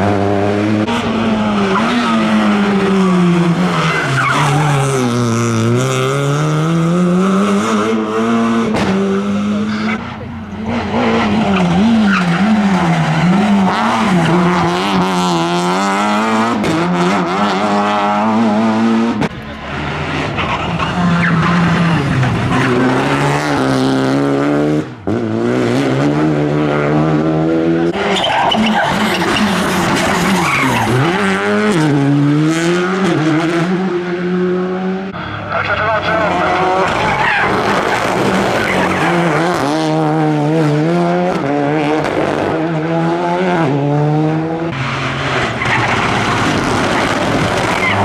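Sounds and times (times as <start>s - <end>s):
rally car engine revving: 0.0s - 48.0s.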